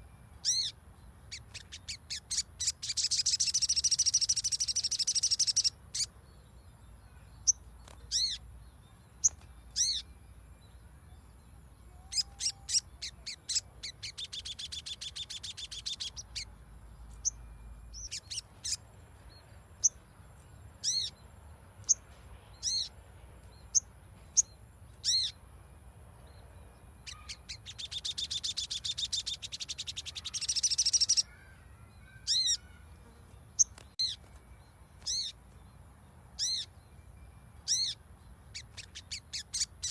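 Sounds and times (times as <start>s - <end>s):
bird chattering trills: 0.4s - 6.1s, 7.5s - 8.5s, 9.2s - 10.2s, 11.9s - 16.5s, 17.1s - 18.8s, 20.8s - 21.2s, 23.7s - 25.4s, 27.0s - 34.2s, 35.0s - 35.4s, 36.4s - 36.8s, 37.6s - 39.9s.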